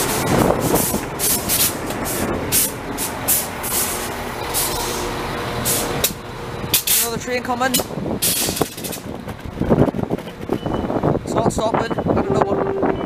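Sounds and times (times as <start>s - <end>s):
train engine hum: 0.0s - 13.0s.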